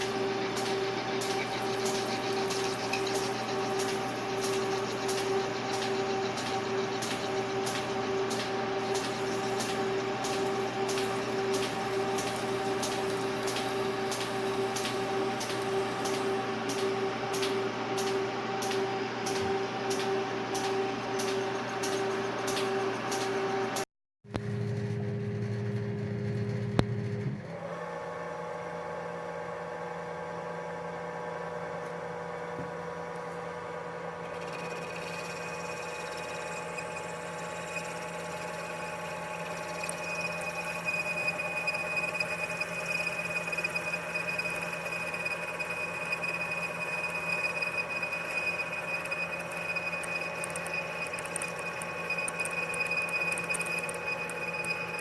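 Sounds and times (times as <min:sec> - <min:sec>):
machine tool whining: 0:00.0 - 0:23.8, 0:31.6 - 0:55.0
high whistling tone: 0:34.0 - 0:55.0.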